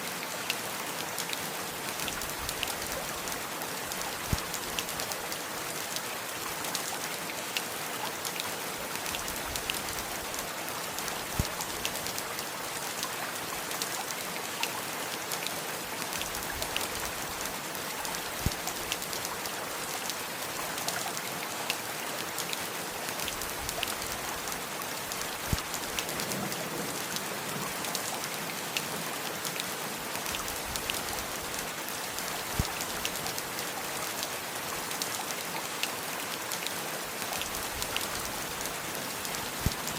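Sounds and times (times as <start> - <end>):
steady rain hiss: 0.0 - 39.9
raindrops tapping close by: 23.3 - 28.8, 37.4 - 39.9.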